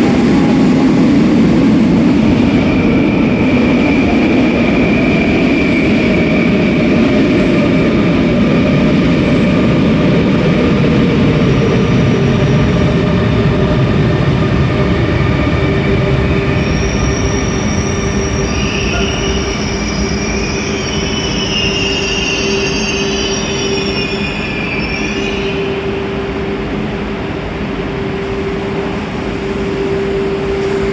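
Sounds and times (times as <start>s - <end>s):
electric train rumbling: 0.0s - 30.9s.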